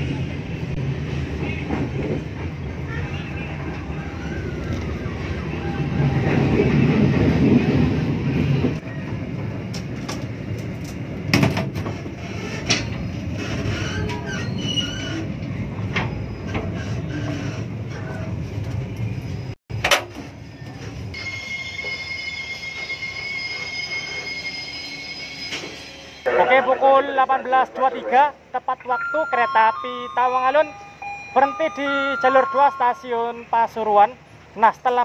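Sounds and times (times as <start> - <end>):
train rumble on rails: 0.0 - 28.6, 30.6 - 35.0
train brakes squealing: 12.2 - 18.2, 20.4 - 26.3, 30.5 - 33.1.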